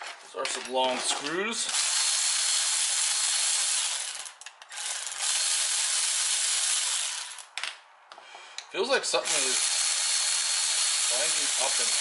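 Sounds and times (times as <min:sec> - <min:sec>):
power driver backing out screws: 0:09.2 - 0:12.0.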